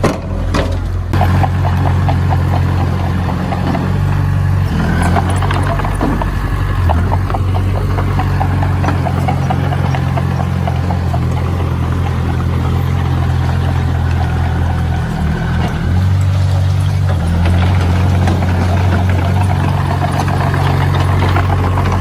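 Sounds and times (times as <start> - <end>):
construction machine engine droning: 0.0 - 22.0.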